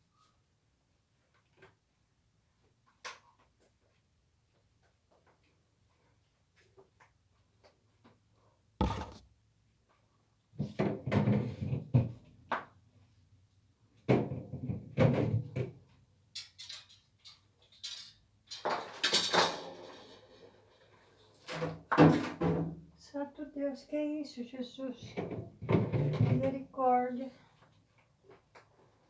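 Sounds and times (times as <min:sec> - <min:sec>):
containers clattering and scraping: 0:08.8 - 0:09.2
sharp knock: 0:08.8 - 0:09.2.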